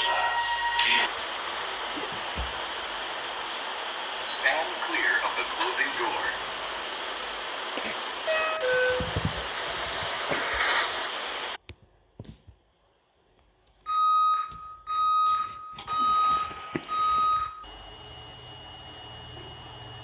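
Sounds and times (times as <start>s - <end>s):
train door warning beeps: 0.0s - 1.1s, 8.3s - 9.3s, 13.9s - 20.0s.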